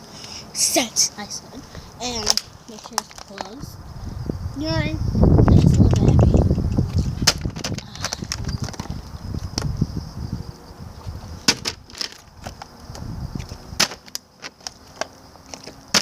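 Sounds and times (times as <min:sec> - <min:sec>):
wind rumble on microphone: 0:01.7 - 0:13.8
plastic bottle knocking on ground: 0:07.2 - 0:08.9, 0:11.5 - 0:12.6.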